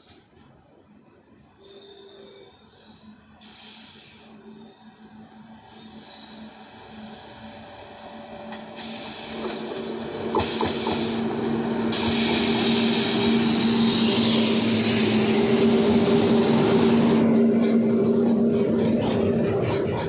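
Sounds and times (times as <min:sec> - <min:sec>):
locomotive hum: 0:00.0 - 0:20.0
wheels hissing on track: 0:00.0 - 0:20.0.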